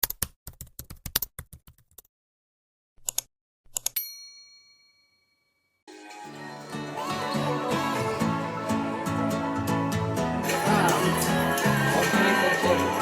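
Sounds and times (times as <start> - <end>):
background music: 5.9 - 13.0.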